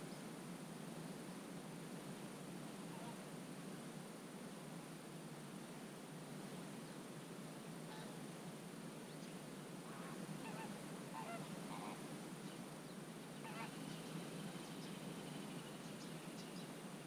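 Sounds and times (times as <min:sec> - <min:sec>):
waterbirds honking: 0:09.9 - 0:12.0, 0:13.4 - 0:13.8.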